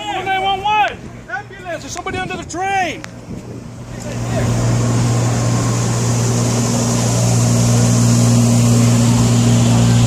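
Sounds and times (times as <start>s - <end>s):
train engine humming: 3.0s - 10.0s.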